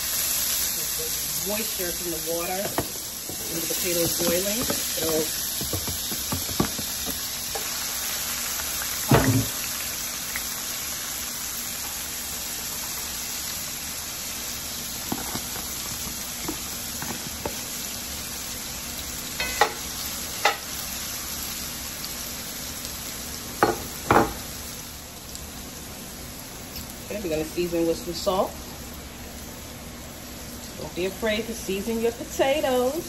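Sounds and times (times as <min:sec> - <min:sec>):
potatoes sizzling in oil: 0:00.0 - 0:33.0.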